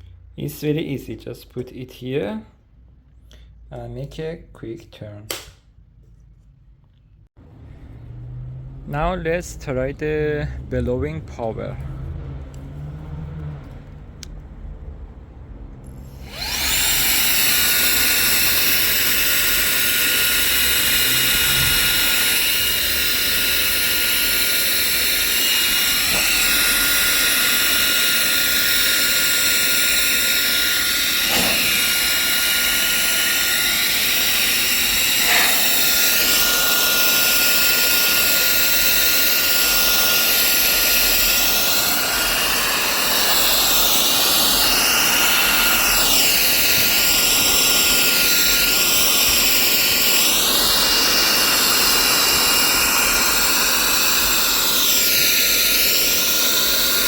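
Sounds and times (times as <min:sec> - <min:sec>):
high motor whine: 0:15.8 - 0:57.0
rush of air from blower: 0:15.9 - 0:57.0.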